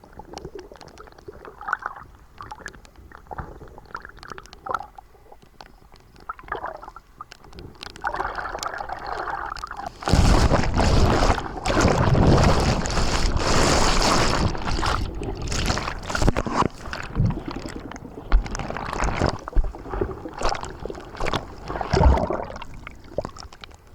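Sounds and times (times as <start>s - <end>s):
rough sea water splashing: 8.0s - 23.6s
rush of water: 9.8s - 23.5s.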